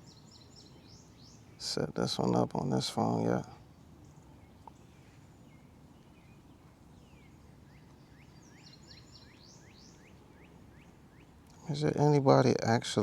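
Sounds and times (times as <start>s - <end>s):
faint bird chirping: 0.0s - 13.0s
quiet background hiss: 0.0s - 13.0s.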